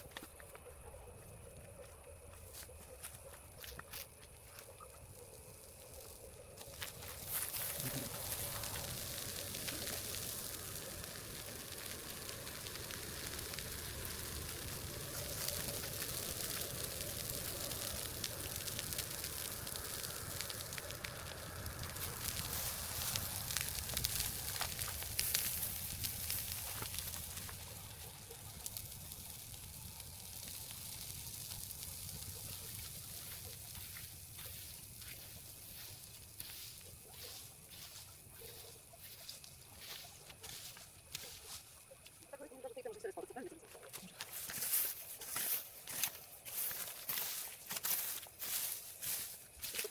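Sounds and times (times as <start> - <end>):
wood fire crackling and hissing: 0.0 - 49.9.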